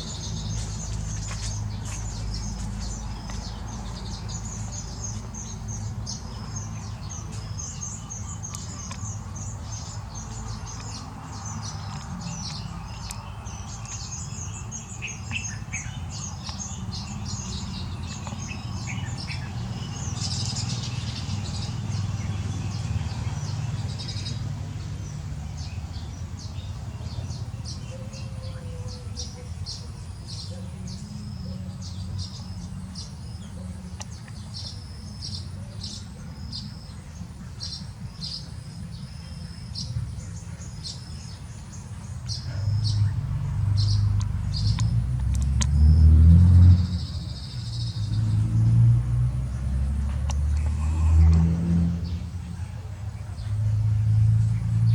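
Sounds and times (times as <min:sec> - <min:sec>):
steady low rumble: 0:00.0 - 0:27.7
small birds chirping: 0:00.0 - 0:54.9.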